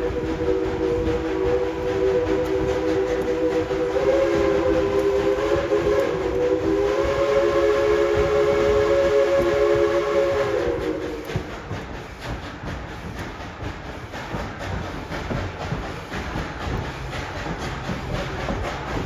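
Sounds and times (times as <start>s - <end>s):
steam locomotive chime whistle: 0.0s - 11.5s
rumble of moving train: 0.0s - 19.0s.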